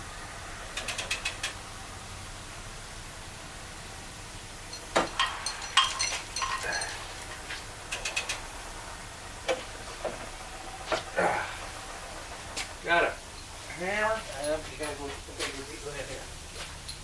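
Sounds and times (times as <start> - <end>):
metal parts clinking: 4.7 - 7.0.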